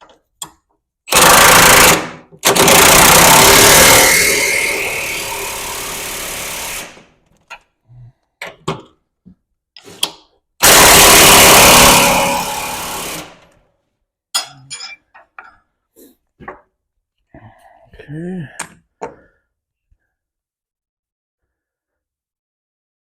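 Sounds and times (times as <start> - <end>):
impact wrench hammering: 1.1 - 4.4, 10.6 - 13.4.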